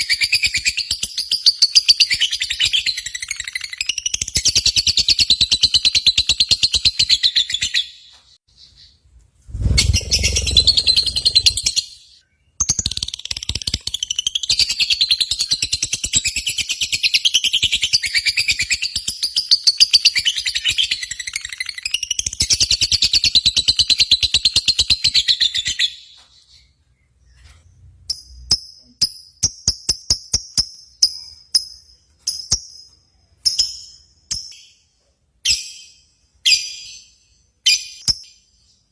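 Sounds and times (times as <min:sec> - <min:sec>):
short sharp bird chirps: 0:08.6 - 0:11.8
low rumble: 0:09.4 - 0:11.7
bird chattering high-pitched: 0:09.8 - 0:11.7.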